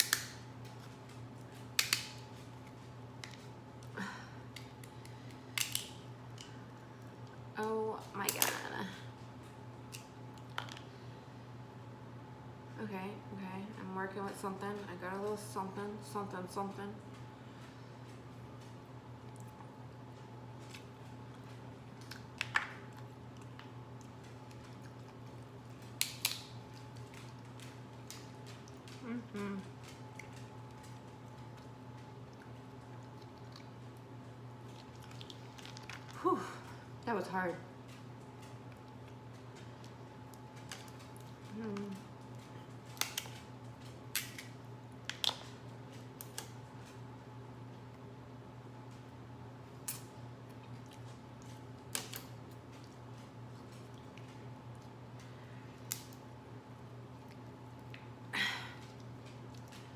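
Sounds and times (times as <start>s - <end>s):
crab shell cracking: 0.0s - 0.4s, 1.8s - 2.2s, 4.5s - 6.5s, 22.0s - 29.0s, 29.8s - 36.2s, 37.9s - 46.6s
faint steady hum: 0.0s - 59.9s.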